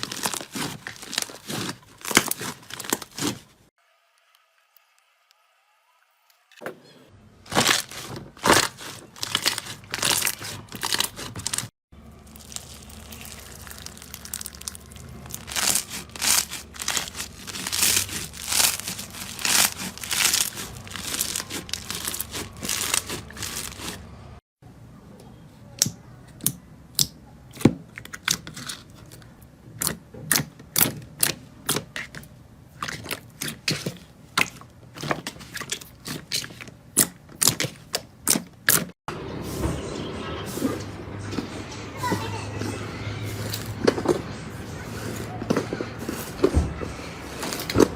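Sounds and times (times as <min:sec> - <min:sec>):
slime crackling and popping: 0:07.5 - 0:23.9.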